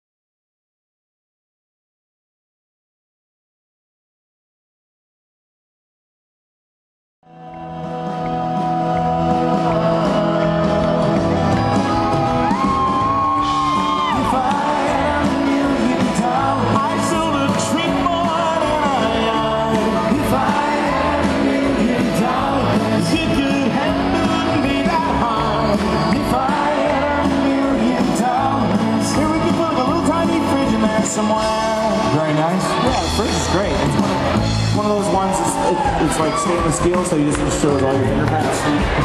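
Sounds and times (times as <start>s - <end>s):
person singing: 7.2s - 12.6s, 13.6s - 32.9s
music accompaniment: 7.3s - 39.0s.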